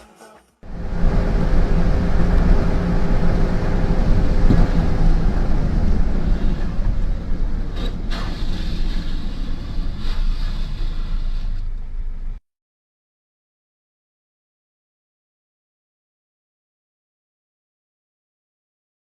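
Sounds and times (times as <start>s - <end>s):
vehicle engine and road noise: 0.6s - 12.4s
brief hissing: 7.8s - 11.8s.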